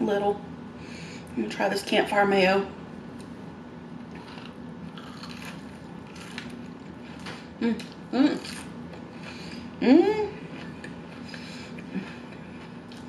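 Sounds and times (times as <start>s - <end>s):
onion ring crunching: 4.1s - 9.0s.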